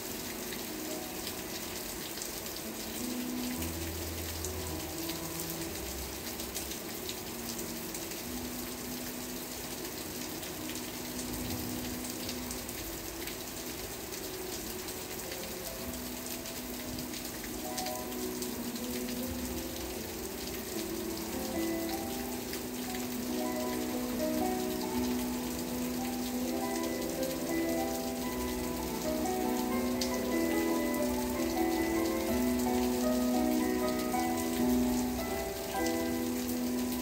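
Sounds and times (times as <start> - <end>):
soft music of low held notes: 0.0 - 37.0
steady rain falling: 0.0 - 37.0.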